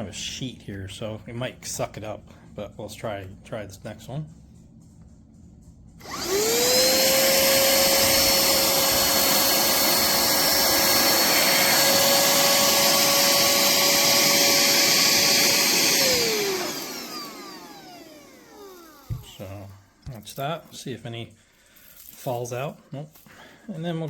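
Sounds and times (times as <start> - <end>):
handheld vacuum motor whine: 6.0 - 19.7.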